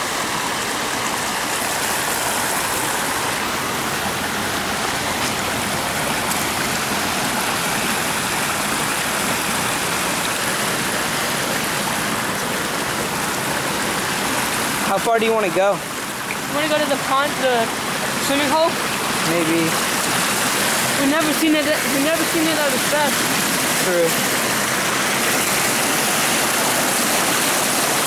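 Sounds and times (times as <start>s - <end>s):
floodwater rushing in creek: 0.0s - 28.0s.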